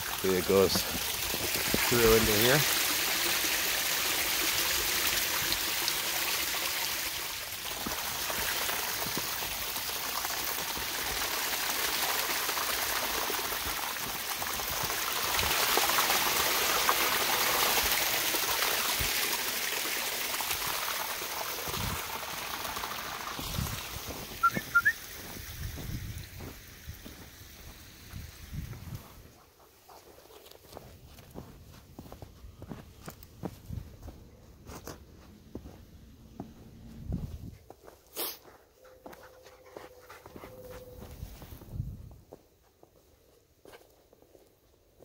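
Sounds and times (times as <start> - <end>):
water trickling through rocks: 0.0 - 29.4.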